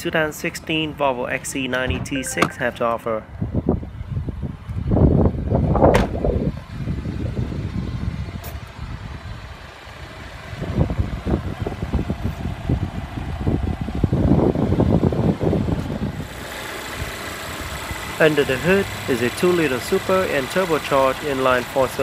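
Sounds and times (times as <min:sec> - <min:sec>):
knocks and rumbling handling noise: 0:01.8 - 0:02.6
car hood latch clunk: 0:05.9 - 0:06.2.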